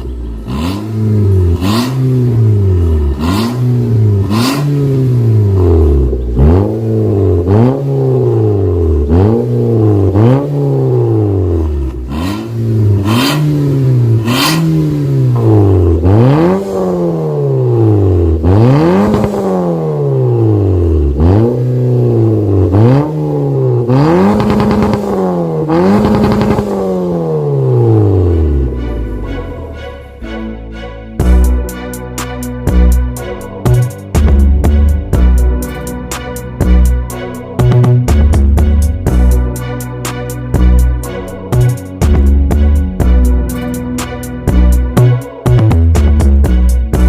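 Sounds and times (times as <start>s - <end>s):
car engine revving in blips: 0.0s - 30.5s, 31.2s - 47.0s
exhaust snaps: 23.9s - 26.9s.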